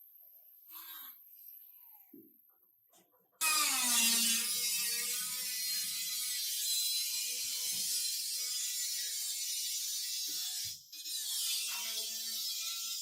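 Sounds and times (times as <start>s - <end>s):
power tool rasping on metal: 3.4s - 13.0s.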